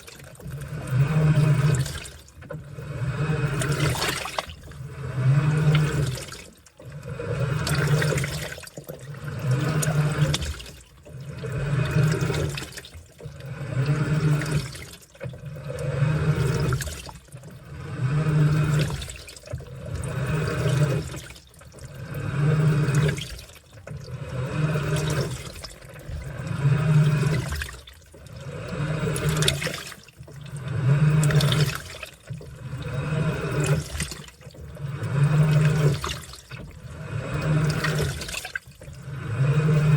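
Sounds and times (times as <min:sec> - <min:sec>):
washing machine motor hum: 0:00.0 - 0:39.9
water and laundry sloshing: 0:00.0 - 0:39.9.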